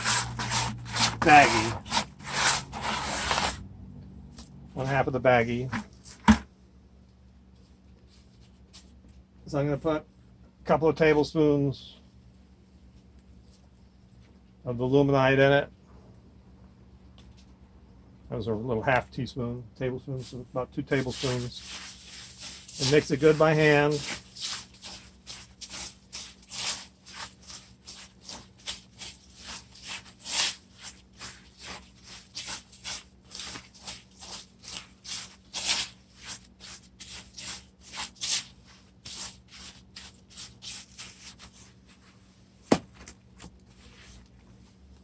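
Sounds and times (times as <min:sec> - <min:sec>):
mortar mixing scraping strokes: 0:00.0 - 0:03.6, 0:20.2 - 0:42.4, 0:43.7 - 0:44.7.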